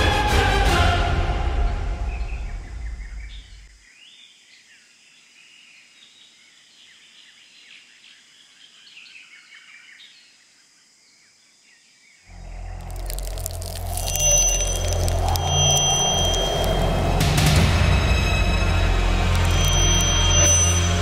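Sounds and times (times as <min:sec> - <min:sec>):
low music: 0:00.0 - 0:03.5, 0:12.3 - 0:21.0
faint birds chirping: 0:02.1 - 0:16.9.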